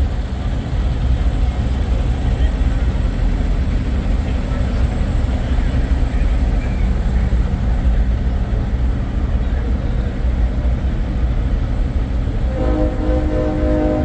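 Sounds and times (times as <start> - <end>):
diesel truck engine idling: 0.0 - 14.0
multi-tone air horn: 12.5 - 14.0.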